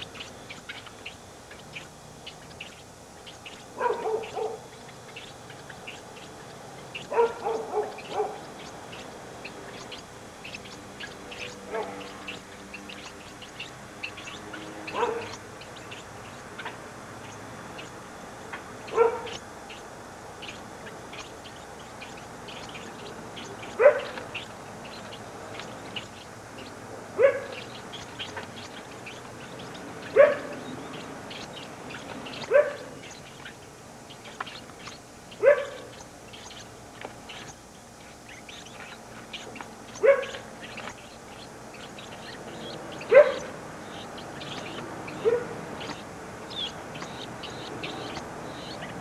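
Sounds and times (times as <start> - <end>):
faint high chirping: 0.0 - 49.0
animal yelping calls: 3.8 - 4.7, 14.9 - 15.4, 39.4 - 41.0, 41.8 - 48.9.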